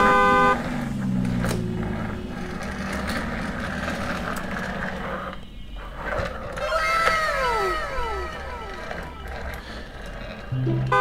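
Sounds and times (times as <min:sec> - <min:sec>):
toy wheels rattling: 0:01.9 - 0:10.5
toy motor whirring: 0:05.9 - 0:10.5
falling electronic tones: 0:06.6 - 0:11.0.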